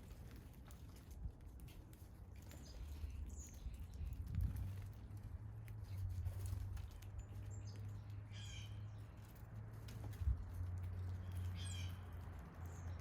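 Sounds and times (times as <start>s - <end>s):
blue jay harsh calls: 8.3s - 8.8s.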